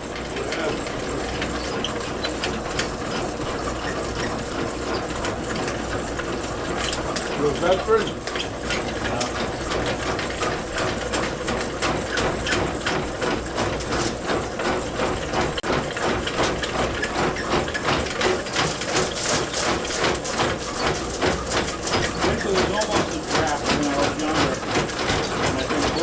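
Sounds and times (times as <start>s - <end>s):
machine clattering rhythmically: 0.0s - 26.0s.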